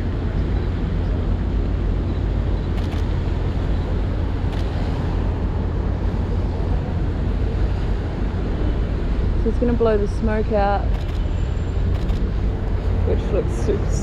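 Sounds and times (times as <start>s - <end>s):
city street traffic rumble: 0.0s - 14.0s.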